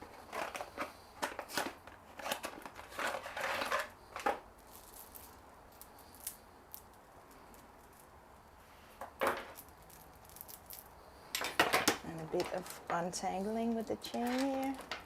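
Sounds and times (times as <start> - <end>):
packaging rustling: 0.1 - 6.4
chain clicking: 9.5 - 10.9.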